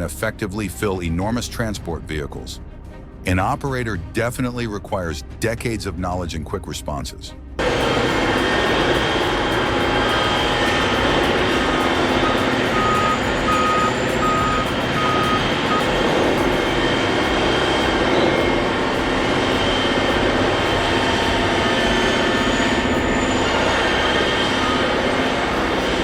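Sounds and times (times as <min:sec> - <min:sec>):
diesel engine running under load: 0:07.6 - 0:26.0
reverse alarm beeping: 0:07.6 - 0:26.0.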